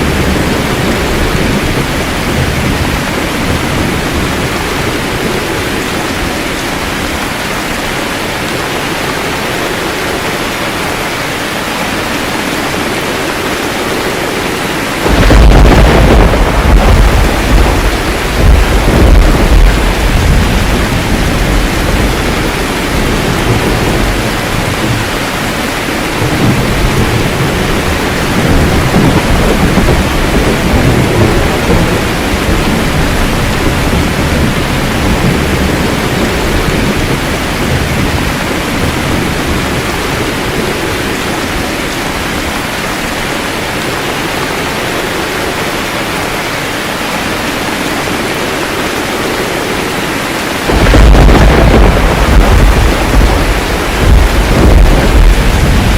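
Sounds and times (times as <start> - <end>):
loud thunderclap: 0.0 - 5.9, 14.9 - 41.1, 50.6 - 55.9
low rolling thunder: 0.0 - 7.5, 12.0 - 41.6, 50.6 - 55.9
steady rain: 0.0 - 55.9.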